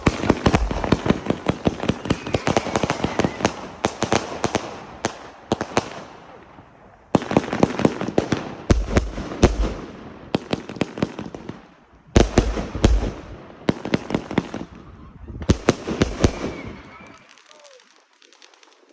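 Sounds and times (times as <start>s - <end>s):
deep firework booms: 0.0s - 6.0s, 7.2s - 11.5s, 12.1s - 17.1s
firecrackers cracking and banging: 0.0s - 6.2s, 15.4s - 18.9s.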